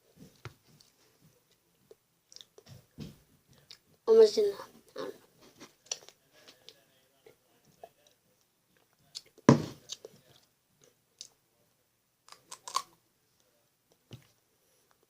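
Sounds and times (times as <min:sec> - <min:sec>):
loud thump: 0:09.5 - 0:09.8.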